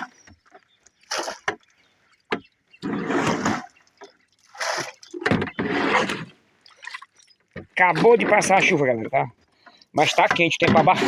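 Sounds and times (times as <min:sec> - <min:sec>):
water splashing and pouring: 0:00.0 - 0:08.8.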